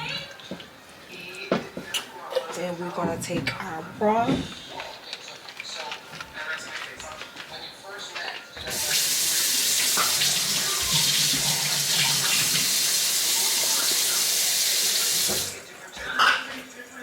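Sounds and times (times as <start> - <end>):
water running from tap: 8.7 - 15.7.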